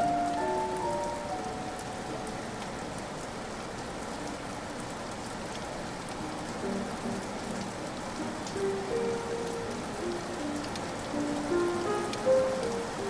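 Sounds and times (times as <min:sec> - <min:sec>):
held musical notes: 0:00.0 - 0:02.7, 0:06.2 - 0:13.0
steady rain falling: 0:00.0 - 0:13.0.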